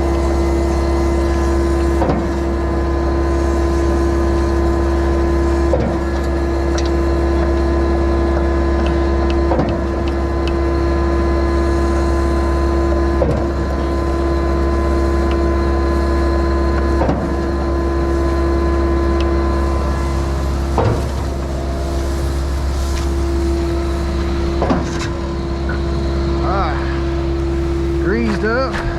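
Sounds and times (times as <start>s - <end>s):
skid-steer engine and hydraulics hum: 0.0s - 28.9s.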